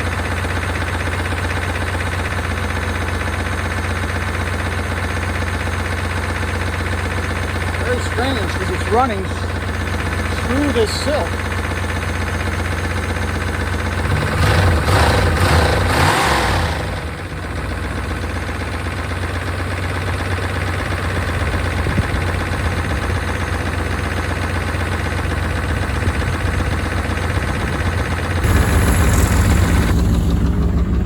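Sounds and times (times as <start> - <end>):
engine idling: 0.0 - 31.0
engine ticking noise: 5.5 - 16.1
car engine revving: 14.0 - 17.2, 28.4 - 31.0.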